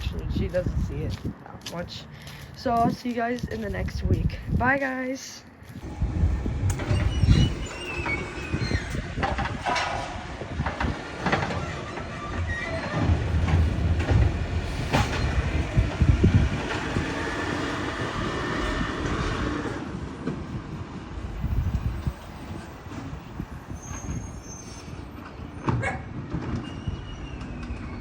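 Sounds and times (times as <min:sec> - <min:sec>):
garbage truck diesel engine rumbling: 0:05.8 - 0:24.0
sharp clanks and knocks: 0:06.7 - 0:15.5.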